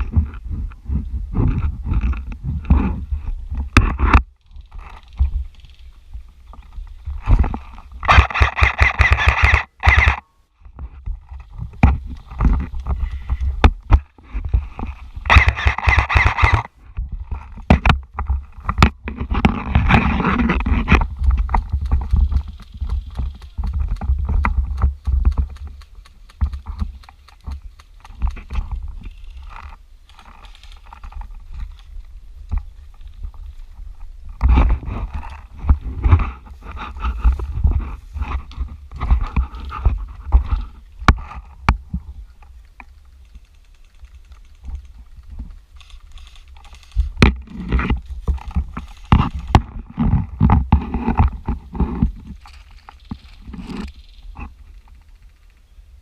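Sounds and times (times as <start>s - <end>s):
rapid evenly spaced clicking: 21.4s - 24.1s.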